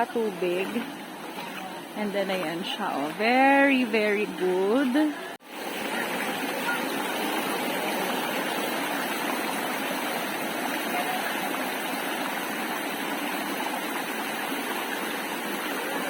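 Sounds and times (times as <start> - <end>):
water pouring over waterfall: 5.4 - 16.0.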